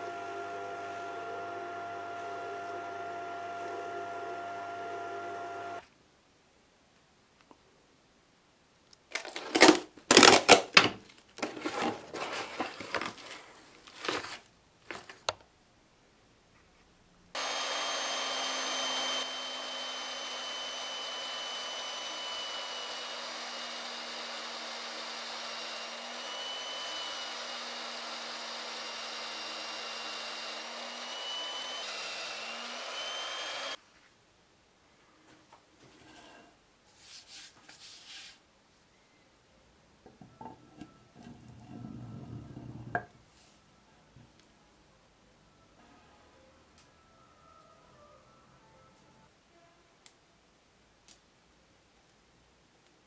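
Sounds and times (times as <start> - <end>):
drill press boring into wood: 0.0 - 5.8, 17.4 - 33.8.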